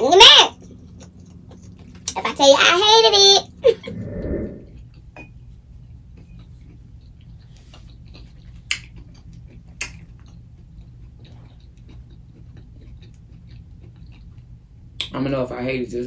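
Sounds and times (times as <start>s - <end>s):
low steady hum: 0.0s - 16.0s
wet mouth chewing clicks: 6.2s - 15.2s
sharp mouth smacks: 8.7s - 8.9s.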